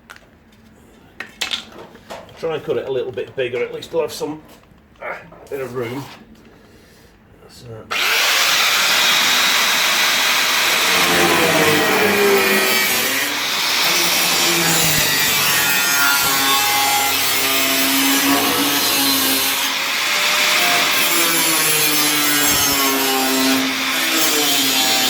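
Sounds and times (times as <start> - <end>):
power tool cutting sheet steel: 7.9 - 25.0.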